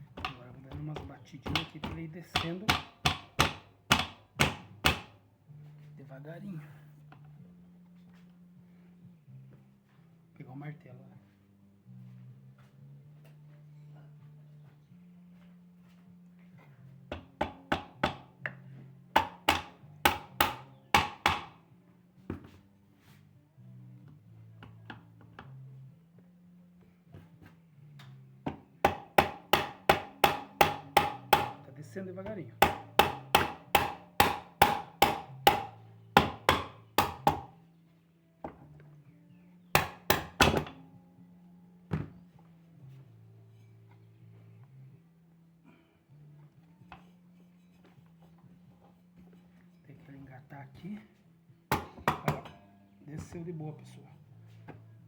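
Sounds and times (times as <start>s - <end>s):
hammer knocking on metal: 0.1s - 5.2s, 17.1s - 18.3s, 19.1s - 21.6s, 28.5s - 31.6s, 32.6s - 37.5s, 51.7s - 52.6s.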